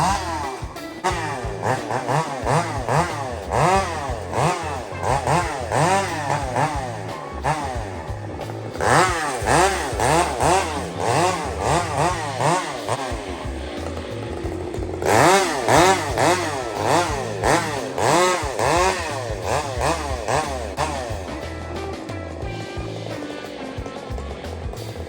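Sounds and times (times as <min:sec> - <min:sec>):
chainsaw revving while cutting: 0:00.0 - 0:21.6
background music: 0:00.0 - 0:25.0.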